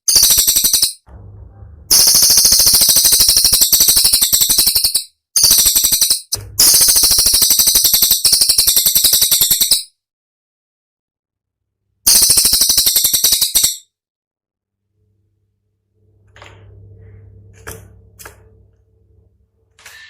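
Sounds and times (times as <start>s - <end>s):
songbird rapid rattle: 0.0s - 1.0s, 12.1s - 13.8s.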